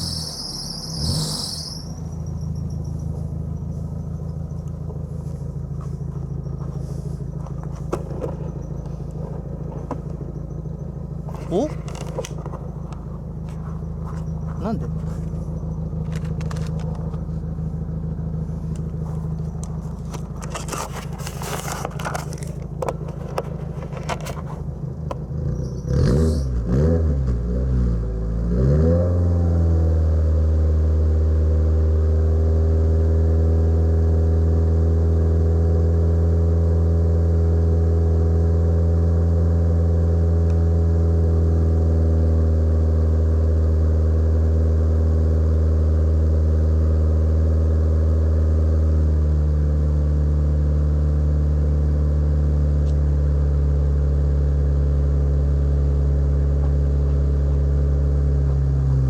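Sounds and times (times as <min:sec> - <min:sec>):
car engine running: 0:00.0 - 0:59.0
clicks and crackles: 0:16.0 - 0:17.2.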